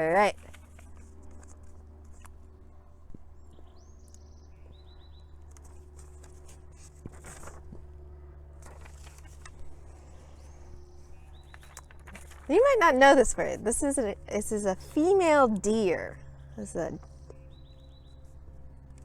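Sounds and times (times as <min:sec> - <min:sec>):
steady low hum: 0:00.0 - 0:19.0
soft clicks and rustles: 0:05.4 - 0:08.0, 0:08.6 - 0:10.7, 0:11.4 - 0:12.5.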